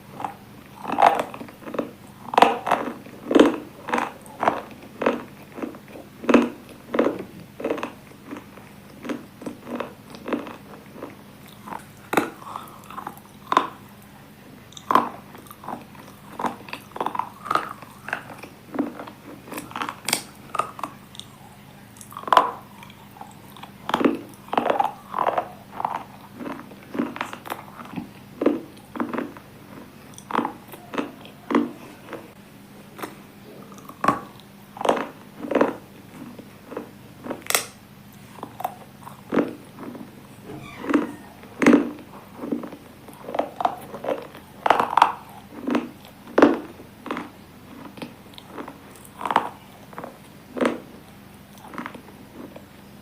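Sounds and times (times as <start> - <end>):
person crunching brittle pieces: 0.2 - 13.8, 22.0 - 32.3.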